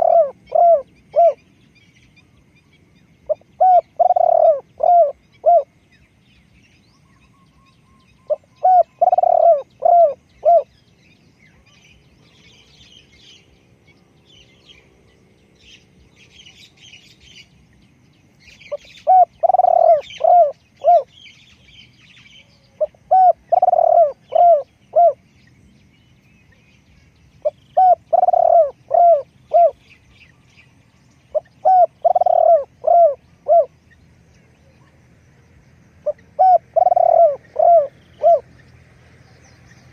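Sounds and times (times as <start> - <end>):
dove cooing: 0.0 - 1.5, 3.3 - 5.8, 8.2 - 10.8, 18.6 - 21.2, 22.4 - 25.3, 27.4 - 29.9, 31.3 - 33.8, 36.0 - 38.6
small birds chirping faintly: 0.0 - 39.9.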